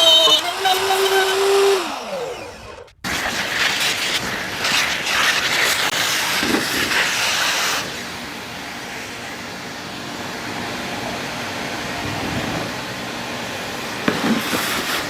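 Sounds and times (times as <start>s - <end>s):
electric power tool motor running: 0.0s - 3.1s, 6.2s - 15.0s.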